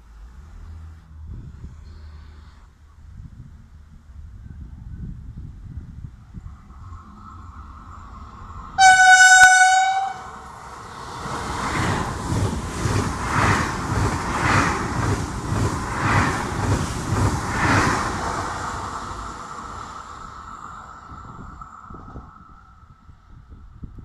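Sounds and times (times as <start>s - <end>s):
high-speed train passing: 4.0s - 24.0s
train horn blast: 8.8s - 10.5s
train wheels beating on rails: 8.8s - 20.5s.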